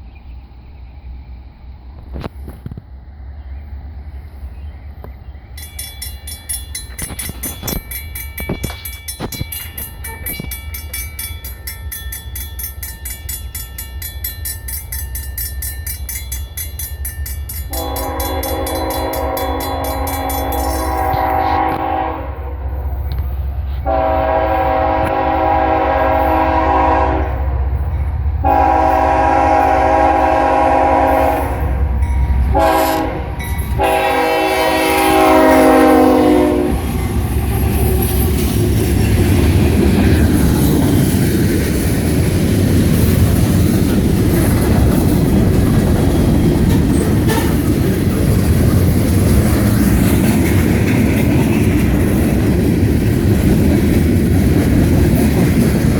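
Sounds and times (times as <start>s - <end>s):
train wheels rumbling and clattering: 0.0s - 55.9s
locomotive air horn blasts: 17.7s - 22.7s, 23.8s - 27.5s, 28.4s - 36.9s, 47.2s - 47.7s.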